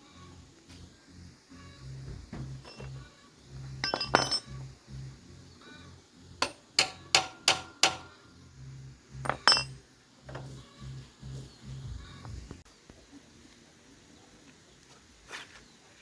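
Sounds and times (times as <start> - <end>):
faint background music with beat: 0.0 - 12.7
metal tools clinking on metal: 2.6 - 3.1, 3.8 - 4.6, 6.4 - 8.1, 9.2 - 10.5.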